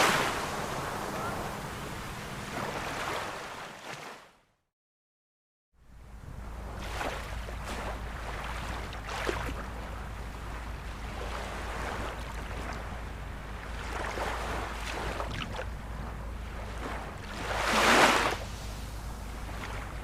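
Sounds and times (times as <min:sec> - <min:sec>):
ocean surf washing: 0:00.0 - 0:04.1, 0:06.0 - 0:20.0
steady low rumble: 0:05.8 - 0:20.0.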